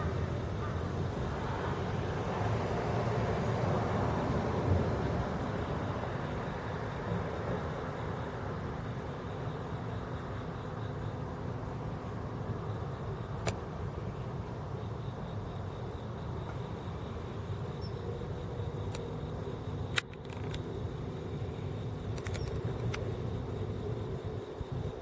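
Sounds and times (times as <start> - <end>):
distant road traffic rumble: 0.0 - 25.0
sharp clicks: 19.9 - 20.7, 22.1 - 23.1.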